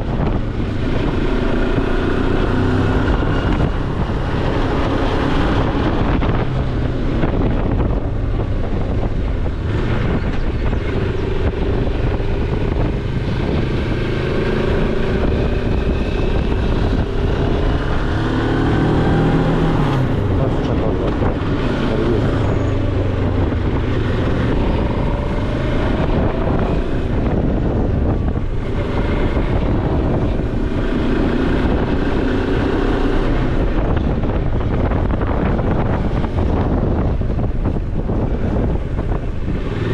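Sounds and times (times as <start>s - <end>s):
motorcycle engine revving: 0.0s - 39.9s
wind noise on microphone: 0.0s - 39.9s.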